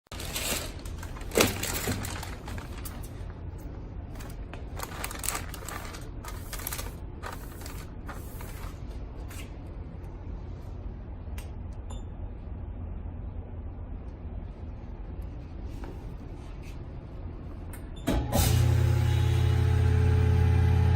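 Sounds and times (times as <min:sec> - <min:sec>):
steady low hum: 0:00.1 - 0:20.9
packaging machine clicks and knocks: 0:01.2 - 0:02.5.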